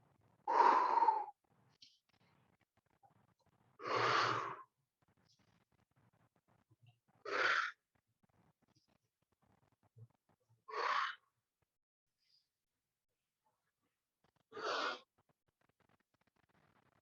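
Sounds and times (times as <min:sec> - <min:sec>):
person breathing deeply: 0:00.5 - 0:01.3.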